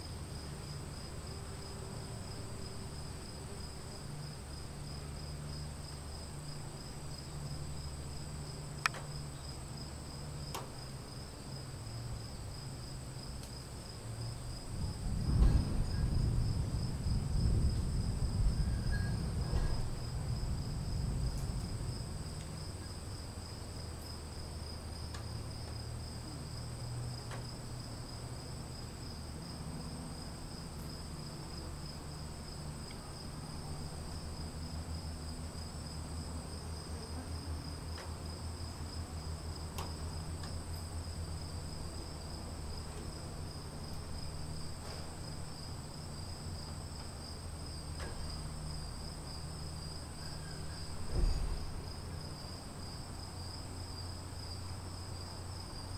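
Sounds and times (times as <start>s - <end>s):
crickets chirping: 0.0s - 55.9s
faint ticks: 8.7s - 9.2s, 10.5s - 10.8s, 13.3s - 13.6s, 25.1s - 25.8s, 27.2s - 27.6s, 39.7s - 40.9s
distant storm rumble: 14.4s - 23.8s, 48.1s - 54.6s.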